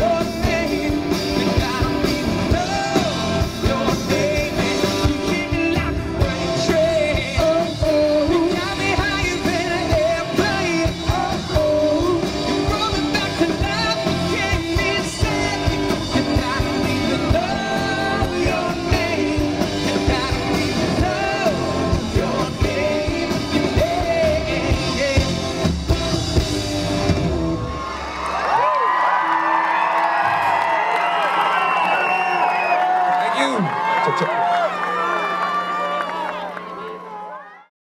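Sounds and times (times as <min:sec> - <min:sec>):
man singing lead vocal: 0:00.0 - 0:25.8
bass guitar: 0:00.0 - 0:28.6
electric guitars: 0:00.0 - 0:28.7
drums: 0:00.0 - 0:33.6.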